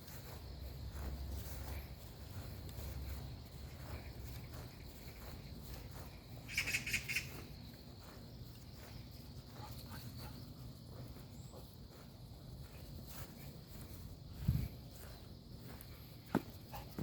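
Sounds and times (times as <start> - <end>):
quick high-pitched chirps: 6.4 - 7.5.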